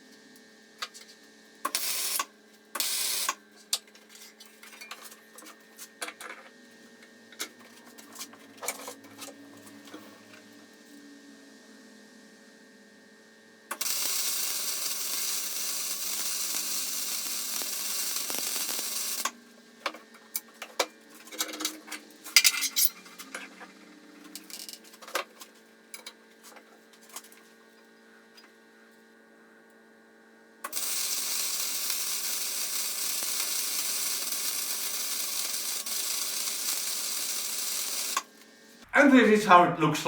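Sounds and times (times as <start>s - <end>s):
welding arc crackling hiss: 1.6s - 3.4s, 13.7s - 20.0s, 30.6s - 38.9s.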